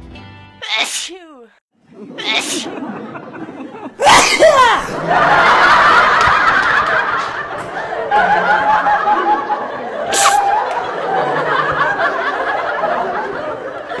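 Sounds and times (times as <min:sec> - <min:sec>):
people laughing: 0:01.8 - 0:14.0
short sharp hissing burst: 0:10.1 - 0:10.5.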